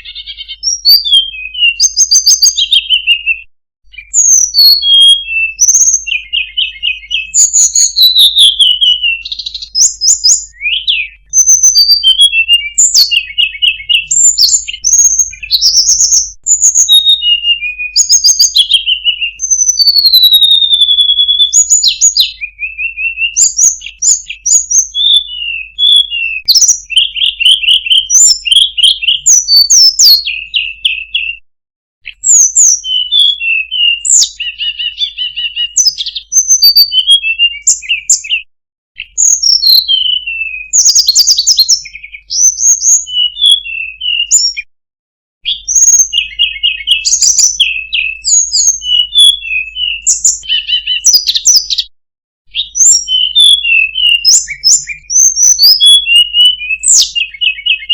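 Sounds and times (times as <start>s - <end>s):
songbird chirps and trills: 0.0s - 31.4s, 32.1s - 38.4s, 39.0s - 44.6s, 45.5s - 51.8s, 52.5s - 57.9s.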